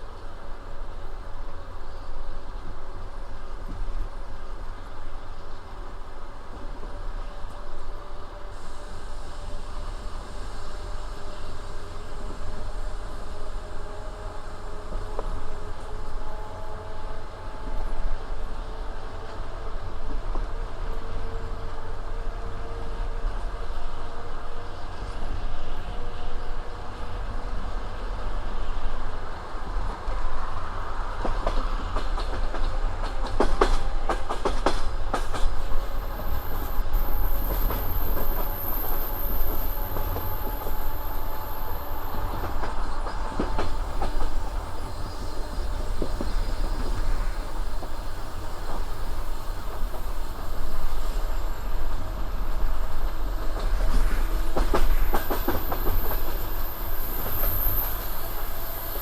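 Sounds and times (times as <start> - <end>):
train wheels clacking on rails: 29.8 - 59.0.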